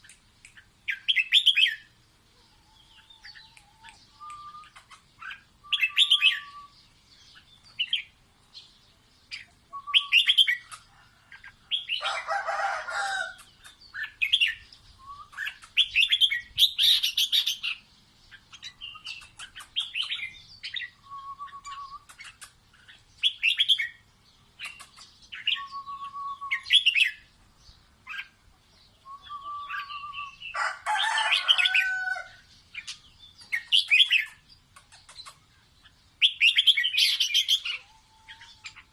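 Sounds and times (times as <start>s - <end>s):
bird chirping phrases: 0.0s - 38.9s
bird whistle: 4.1s - 6.8s, 9.7s - 10.4s, 20.8s - 22.1s, 25.4s - 27.2s, 29.0s - 30.4s.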